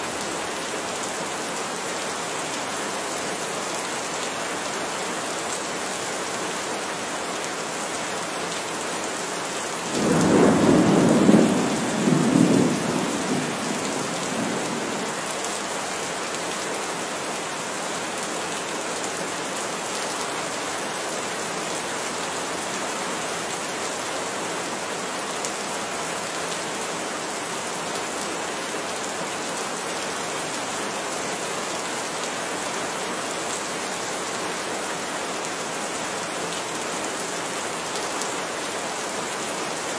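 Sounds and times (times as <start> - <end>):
steady rain falling: 0.0 - 39.9
thunder rumbling: 10.0 - 15.2.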